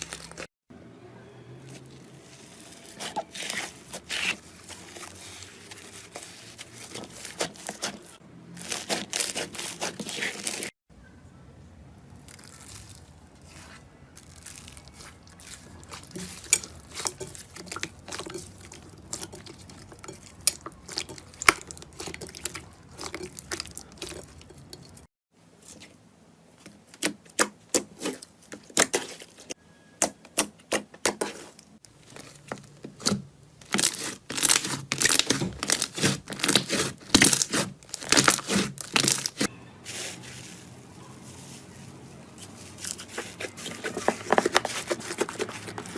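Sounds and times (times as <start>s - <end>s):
hands squishing sticky slime: 2.4s - 10.7s, 12.3s - 24.6s, 33.7s - 40.1s, 42.4s - 45.9s.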